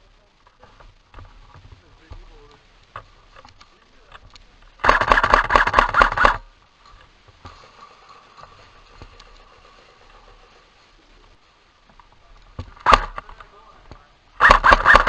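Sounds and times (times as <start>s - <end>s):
airsoft gun full-auto burst: 4.8s - 6.5s, 12.7s - 13.4s, 14.4s - 15.0s.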